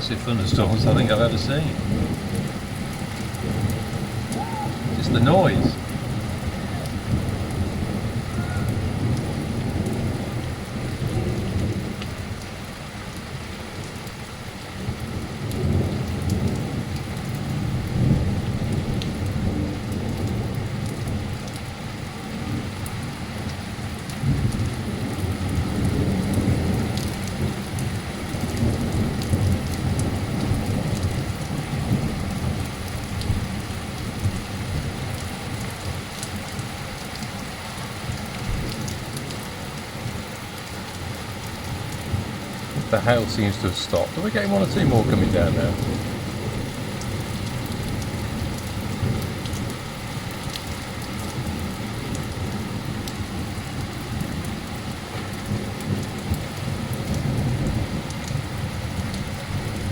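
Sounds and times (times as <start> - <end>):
thunder rolling: 0.0 - 12.0, 42.1 - 49.7
torrential rain and hail: 0.0 - 59.9.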